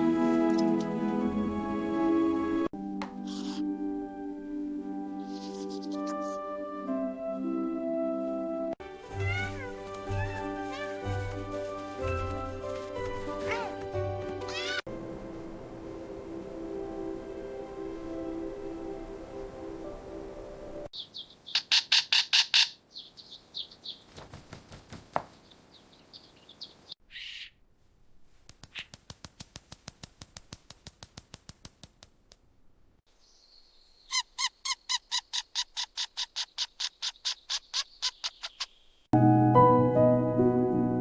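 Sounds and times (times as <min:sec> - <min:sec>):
background music: 0:00.0 - 0:20.9, 0:39.2 - 0:41.0.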